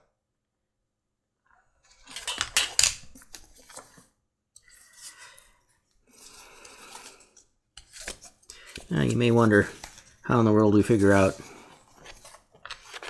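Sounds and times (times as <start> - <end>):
scratchy scraping: 4.6 - 13.0.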